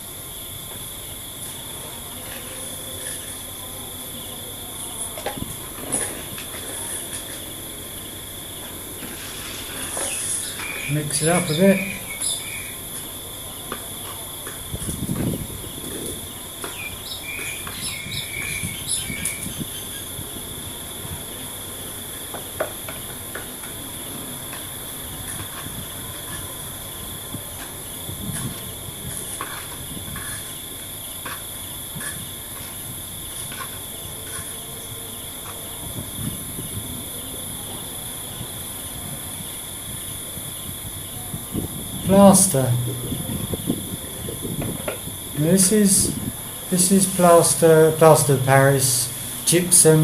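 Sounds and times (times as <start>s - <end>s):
insects chirring: 0.0s - 50.0s
hand-mixing sand and cement: 9.0s - 12.0s, 27.6s - 35.7s.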